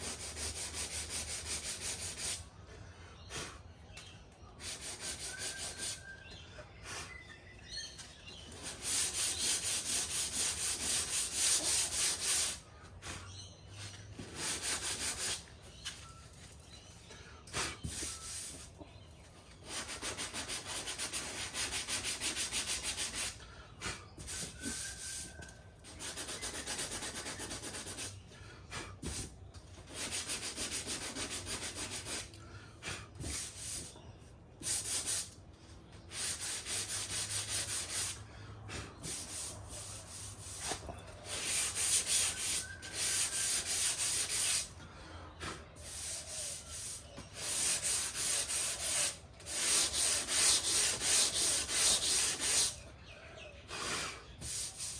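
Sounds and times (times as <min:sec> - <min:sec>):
sanding block rubbing metal panel: 0:00.0 - 0:02.4, 0:04.6 - 0:06.0, 0:08.5 - 0:12.6, 0:14.4 - 0:15.4, 0:19.7 - 0:23.4, 0:25.9 - 0:28.2, 0:29.9 - 0:32.3, 0:36.1 - 0:38.2, 0:39.0 - 0:44.7, 0:45.8 - 0:52.8, 0:54.4 - 0:54.9.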